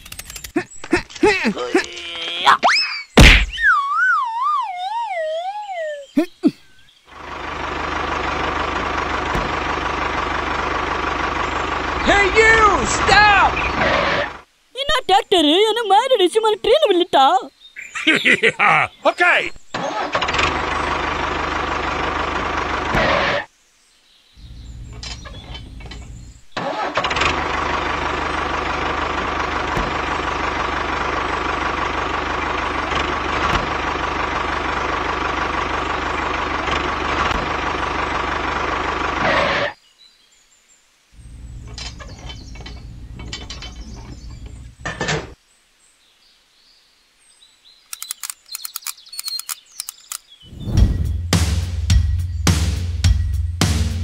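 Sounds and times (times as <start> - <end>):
engine running: 7.1 - 14.5, 19.7 - 23.5, 24.4 - 39.8, 41.2 - 45.4, 48.0 - 54.0
screwdriver clicks: 47.9 - 50.2.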